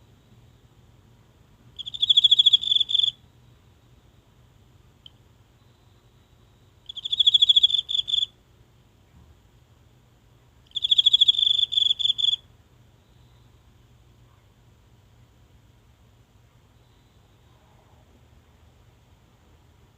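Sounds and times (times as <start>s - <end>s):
insect pulsing trills: 1.8s - 3.2s, 6.9s - 8.3s, 10.7s - 12.4s.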